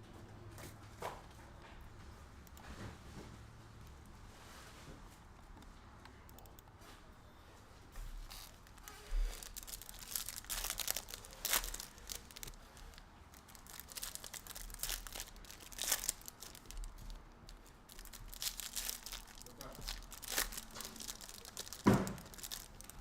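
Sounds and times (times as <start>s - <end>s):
cards rustling: 8.1s - 23.0s
foil packs tearing and crinkling: 8.2s - 23.0s.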